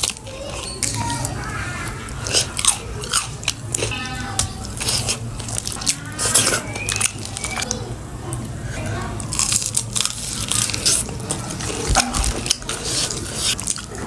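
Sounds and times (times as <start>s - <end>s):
crunchy bites and chewing: 2.0s - 7.8s, 8.7s - 14.0s.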